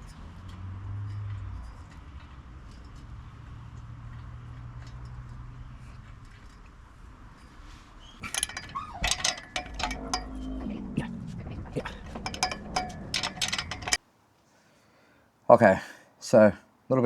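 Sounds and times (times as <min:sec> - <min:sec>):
tools clinking on metal: 0:00.0 - 0:06.8, 0:08.2 - 0:10.8, 0:11.8 - 0:14.0
low steady hum: 0:00.0 - 0:14.3.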